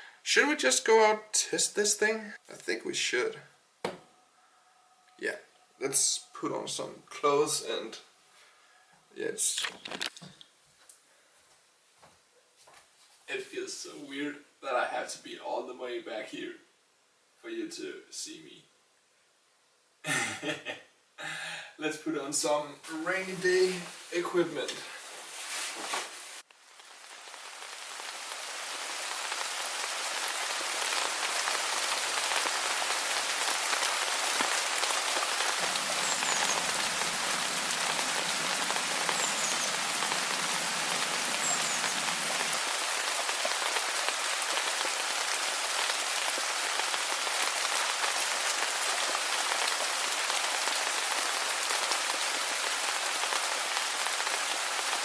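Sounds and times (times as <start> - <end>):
steady rain falling: 26.4 - 55.0
faint high chirps: 35.6 - 42.6.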